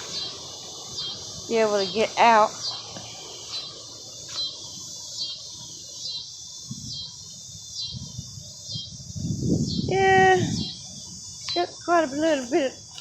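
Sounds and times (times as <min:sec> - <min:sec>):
bird chirping: 0:00.0 - 0:09.0.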